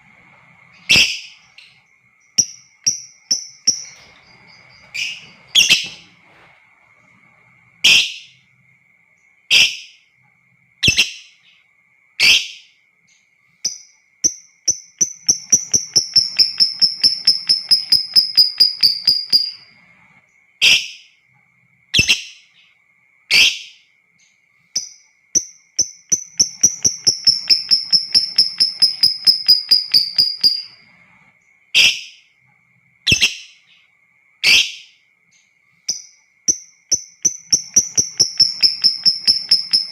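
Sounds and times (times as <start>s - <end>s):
faint high hum: 0.0s - 39.9s
bird chattering trill: 14.7s - 19.6s, 24.8s - 30.8s, 35.9s - 39.9s.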